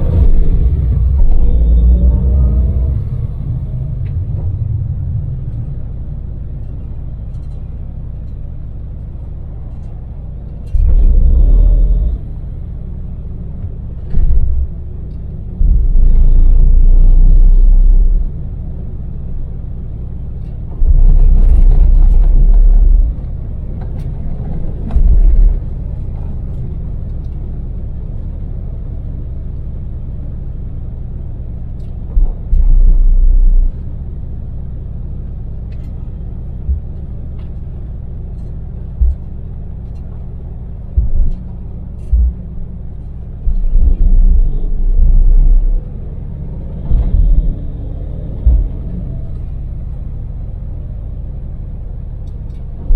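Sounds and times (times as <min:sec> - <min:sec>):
loud deep rumbles: 0:00.0 - 0:29.5, 0:31.0 - 0:52.9
van engine drone: 0:00.0 - 0:52.9
tyre noise: 0:40.9 - 0:46.0, 0:46.6 - 0:49.6.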